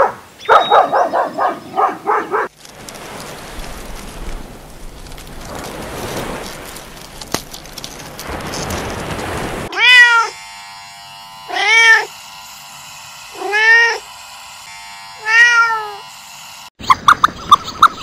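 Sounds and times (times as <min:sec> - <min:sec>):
cat meowing: 0:09.7 - 0:10.4, 0:11.5 - 0:12.1, 0:13.4 - 0:14.0, 0:15.2 - 0:16.0.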